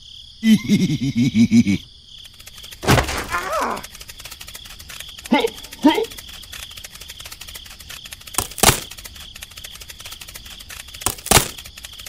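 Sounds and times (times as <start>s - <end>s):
fast ticking: 2.2s - 12.0s
pick striking ground and wood: 2.8s - 4.1s, 7.1s - 12.0s.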